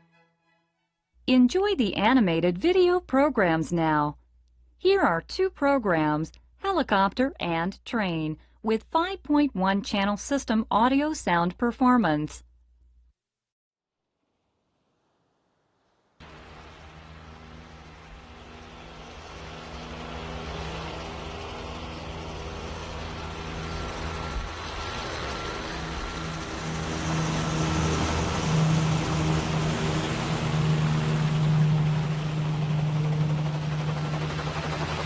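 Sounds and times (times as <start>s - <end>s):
low engine hum: 16.2s - 35.0s.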